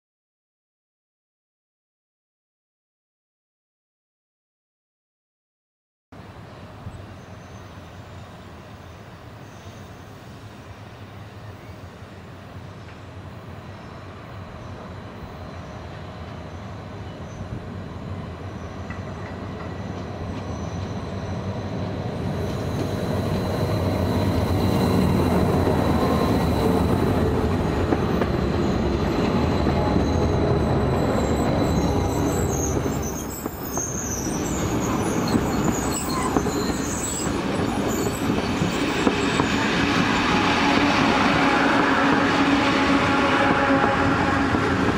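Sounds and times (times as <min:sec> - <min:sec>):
electric train passing: 0:06.2 - 0:44.9
high wheel squeals: 0:20.4 - 0:40.9.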